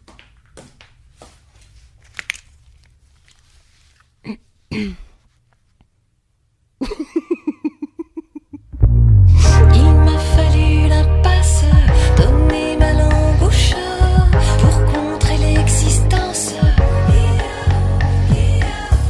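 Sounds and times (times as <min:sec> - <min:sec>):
loud background music: 0:09.4 - 0:19.0.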